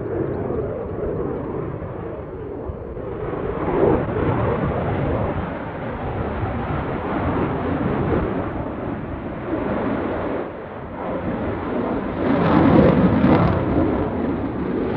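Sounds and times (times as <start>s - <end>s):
jet engine rumble: 0.0s - 14.9s.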